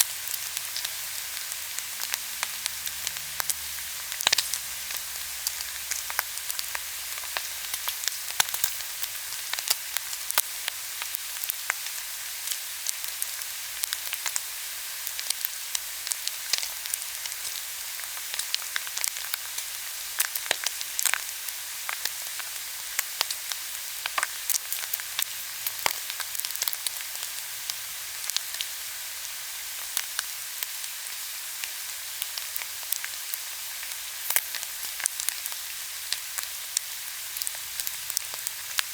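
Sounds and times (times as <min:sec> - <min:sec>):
fat crackling and popping: 0:00.0 - 0:11.9, 0:32.3 - 0:38.9
meat sizzling on a grill: 0:00.0 - 0:38.9.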